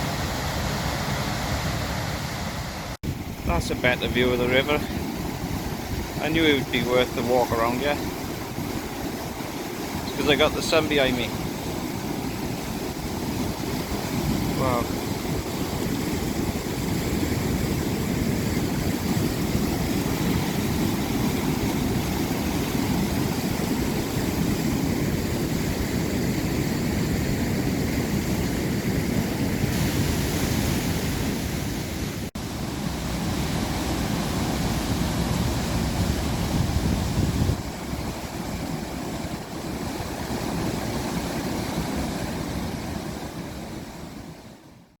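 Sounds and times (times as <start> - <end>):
water rushing over a weir: 0.0 - 44.7.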